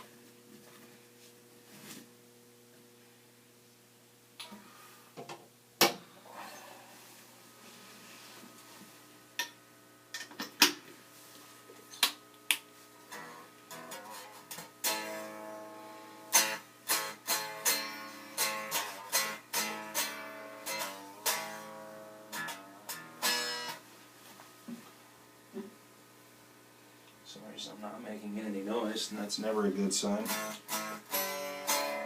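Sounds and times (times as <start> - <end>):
unamplified electric guitar strings: 13.1 - 23.8, 30.0 - 32.0.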